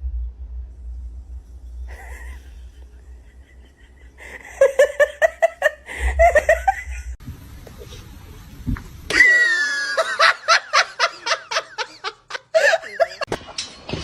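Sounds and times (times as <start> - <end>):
person laughing: 1.9 - 7.2, 9.1 - 13.3.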